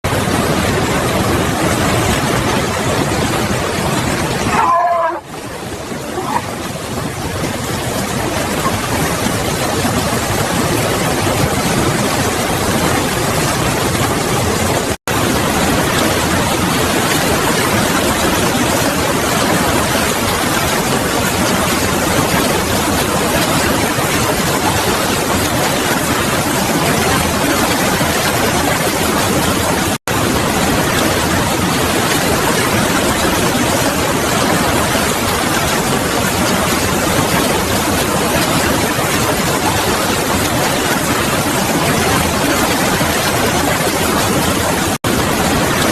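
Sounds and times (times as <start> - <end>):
steady loud rushing noise: 0.0 - 45.9.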